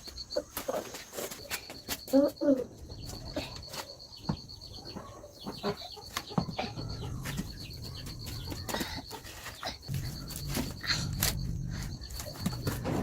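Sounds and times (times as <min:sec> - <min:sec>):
chickens clucking: 0:02.1 - 0:10.7
high pulsing tone: 0:06.4 - 0:13.0.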